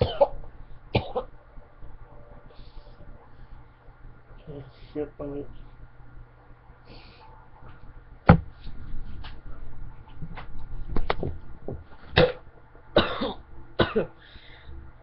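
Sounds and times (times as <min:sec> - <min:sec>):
man coughing and gagging: 0:00.0 - 0:00.4, 0:01.0 - 0:01.3, 0:12.2 - 0:12.4, 0:13.0 - 0:14.2.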